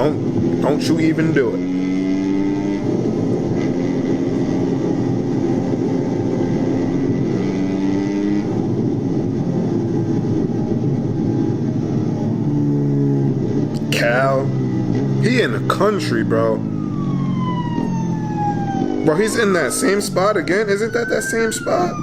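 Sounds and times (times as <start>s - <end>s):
vehicle engine low rumble: 0.0s - 22.0s.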